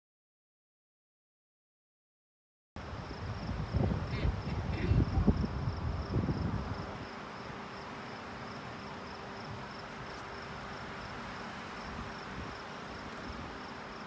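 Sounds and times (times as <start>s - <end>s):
crickets chirping: 2.8s - 14.0s
faint steady hum: 2.8s - 14.0s.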